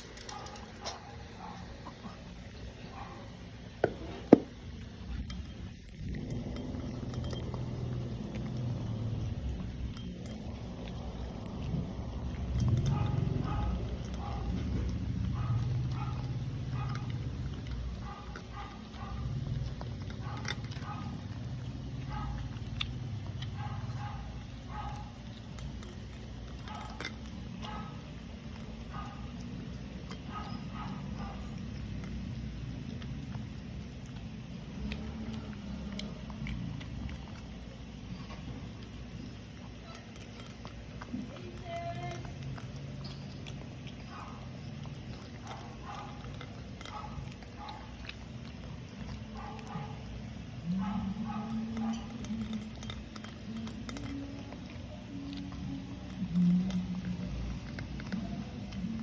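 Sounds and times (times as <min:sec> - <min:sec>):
dog chewing and crunching: 0:00.0 - 0:59.0
steady low hum: 0:00.0 - 0:59.0.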